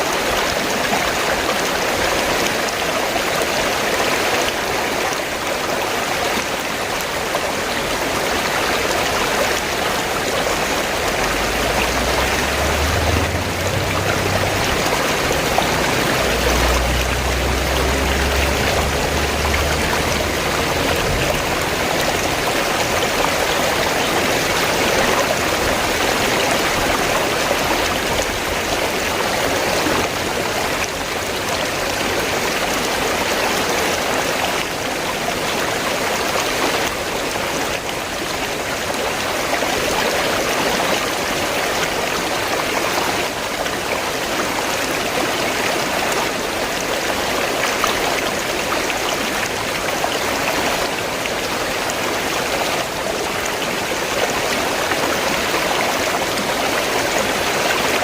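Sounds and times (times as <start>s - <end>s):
river water rushing: 0.0s - 58.0s
low rumble: 11.1s - 24.2s.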